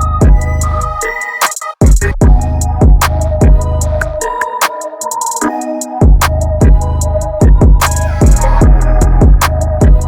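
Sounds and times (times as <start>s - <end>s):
deep bass kicks: 0.0s - 1.0s, 1.8s - 4.2s, 6.0s - 10.0s
ticking hi-hats: 0.0s - 10.0s.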